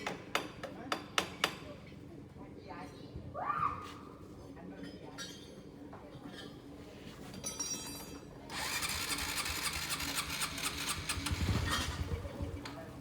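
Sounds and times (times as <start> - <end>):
machine mechanical clatter: 8.5 - 12.8.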